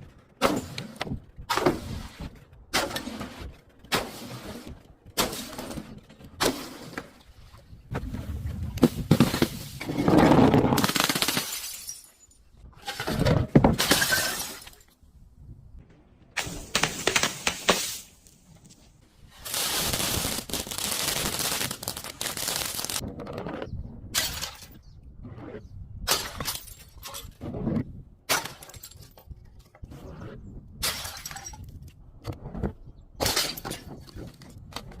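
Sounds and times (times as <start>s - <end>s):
glass shattering and crunching: 10.8s - 12.6s, 13.8s - 15.0s, 24.2s - 24.8s, 26.1s - 27.4s, 28.3s - 29.3s, 30.8s - 31.7s.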